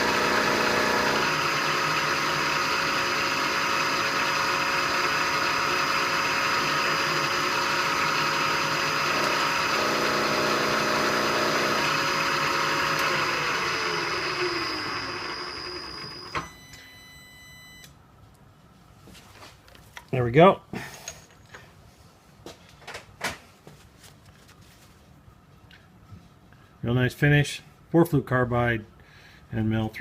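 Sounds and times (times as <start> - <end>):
milling machine running: 0.0 - 16.5
spindle winding down: 0.0 - 16.7.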